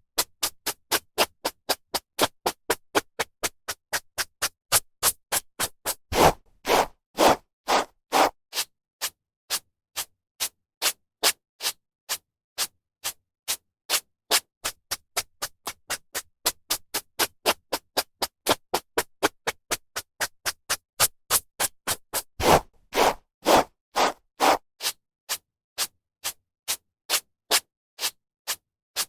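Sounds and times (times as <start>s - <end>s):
brush swishing through hair: 6.2s - 8.3s, 22.4s - 24.6s.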